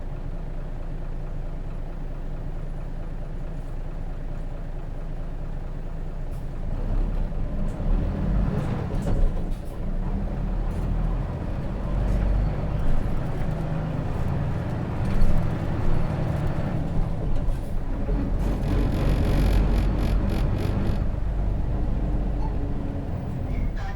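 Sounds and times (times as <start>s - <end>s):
bus diesel engine: 0.0s - 23.9s
body rattles and knocks: 18.4s - 21.1s.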